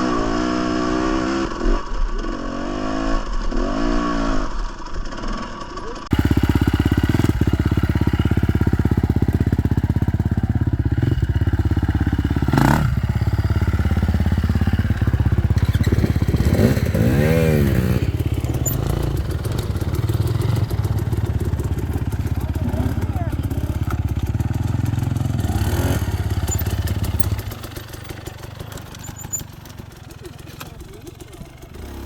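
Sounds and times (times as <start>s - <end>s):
dirt bike engine running: 0.3s - 32.0s.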